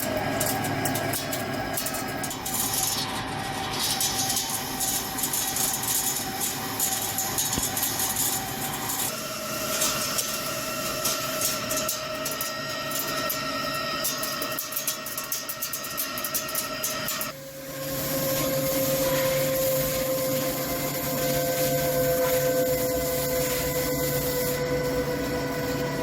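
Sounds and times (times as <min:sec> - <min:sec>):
lathe whine: 0:00.0 - 0:26.0
metal chips crackling: 0:00.4 - 0:17.4.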